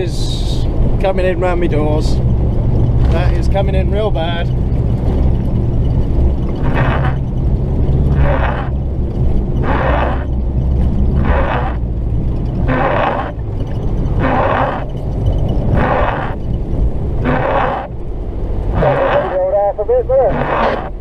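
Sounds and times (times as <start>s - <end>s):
diesel engine low rumble: 0.0s - 21.0s
rasping swish of water: 9.6s - 10.3s.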